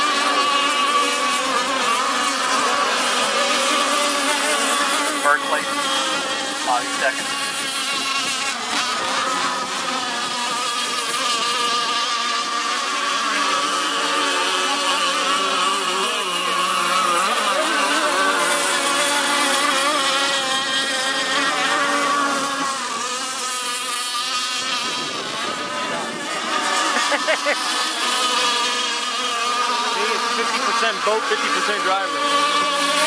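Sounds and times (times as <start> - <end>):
high-pitched model boat engines whining: 0.0 - 33.0.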